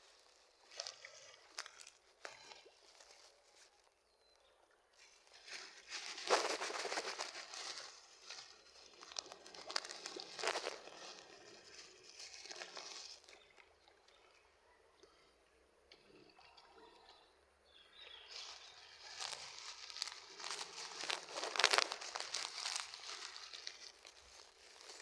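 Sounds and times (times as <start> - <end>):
rustling handling noise: 5.0 - 13.4, 18.3 - 25.0.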